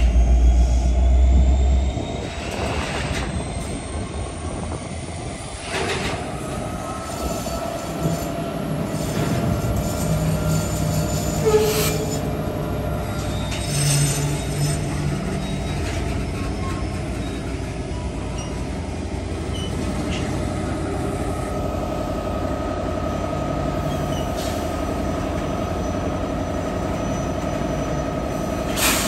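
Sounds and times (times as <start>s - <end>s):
train wheels rumbling on rails: 0.0s - 29.0s
high wheel squeal: 6.7s - 18.8s, 26.8s - 29.0s.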